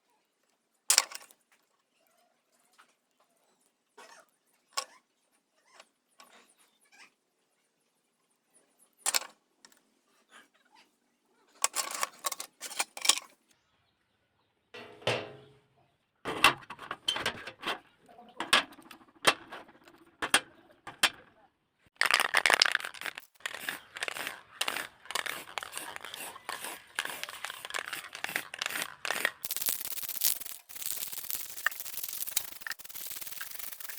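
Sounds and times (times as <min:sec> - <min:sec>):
short scraping rasps: 0:11.6 - 0:13.3, 0:23.0 - 0:33.9.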